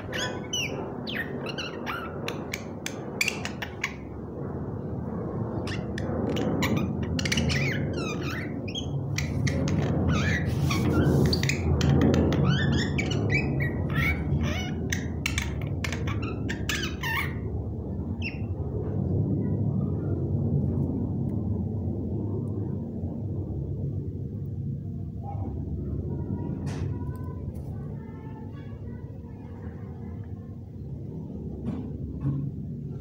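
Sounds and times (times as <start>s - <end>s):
myna chirps whistles and squeaks: 0.0s - 4.0s, 5.7s - 17.4s
steady low rumble: 0.0s - 33.0s.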